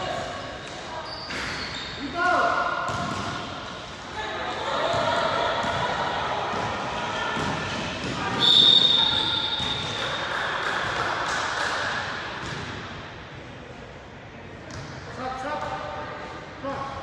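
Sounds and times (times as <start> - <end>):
voices in a gym: 0.0 - 17.0.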